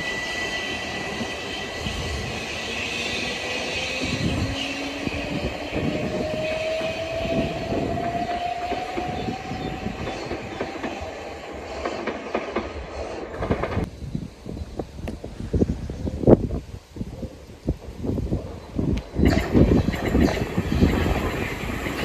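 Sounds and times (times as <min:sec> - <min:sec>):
train motor whine: 0:00.0 - 0:12.2, 0:19.2 - 0:22.0
electric train passing: 0:00.0 - 0:16.0, 0:17.8 - 0:22.0
wheels clacking over rail joints: 0:19.2 - 0:22.0.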